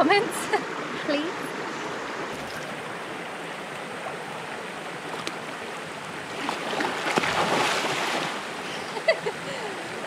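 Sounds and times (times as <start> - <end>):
flowing water: 0.0 - 10.0
rough splashing noise: 6.3 - 8.6.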